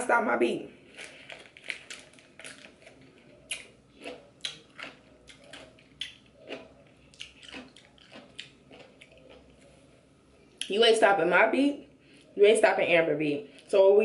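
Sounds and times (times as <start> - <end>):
crunchy pickle chewing: 0.9 - 10.0.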